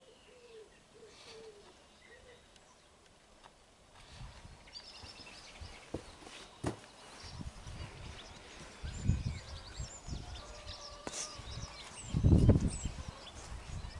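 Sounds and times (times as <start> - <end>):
short low bird calls: 0.0 - 2.9.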